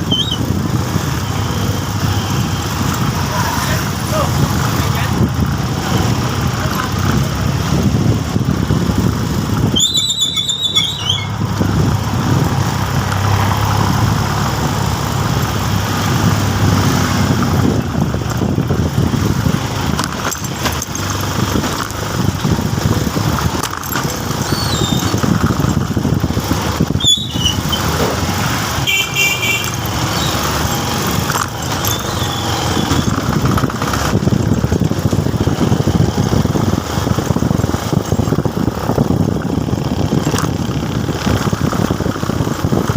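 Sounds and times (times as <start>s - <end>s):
high-pitched squeals: 0.0s - 0.5s, 9.7s - 11.4s, 24.4s - 25.7s, 27.0s - 28.0s, 29.6s - 33.2s
motorcycle engine running: 0.0s - 42.9s
wind and road noise: 0.0s - 42.9s.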